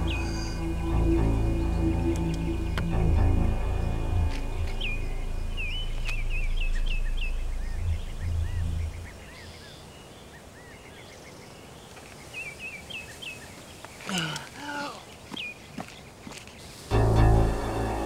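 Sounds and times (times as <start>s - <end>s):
low drone: 0.0s - 9.7s, 16.9s - 18.0s
small birds chirping: 0.0s - 17.0s.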